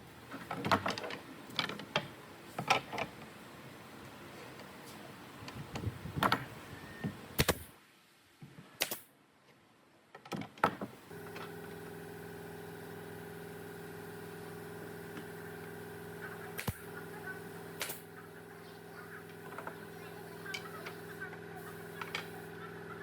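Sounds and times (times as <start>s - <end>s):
motor humming: 11.0s - 23.0s.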